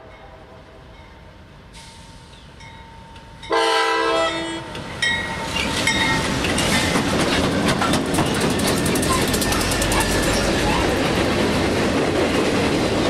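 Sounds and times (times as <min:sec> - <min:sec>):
freight train passing on rails: 0:00.0 - 0:13.0
locomotive air horn blast: 0:03.5 - 0:04.8.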